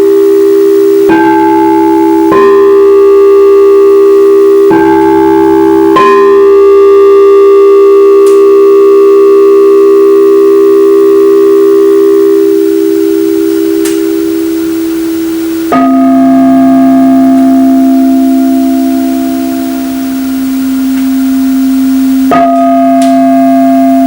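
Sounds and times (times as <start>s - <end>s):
crystal singing bowls ringing: 0.0s - 24.0s
deep singing bowl tone: 0.0s - 24.0s.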